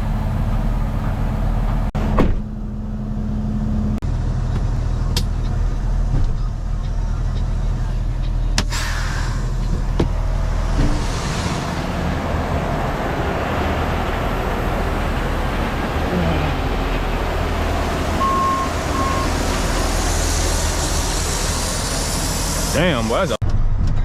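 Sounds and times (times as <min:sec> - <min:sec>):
diesel engine droning: 0:00.0 - 0:24.0
road noise: 0:00.0 - 0:24.0
short beeps: 0:18.2 - 0:19.4.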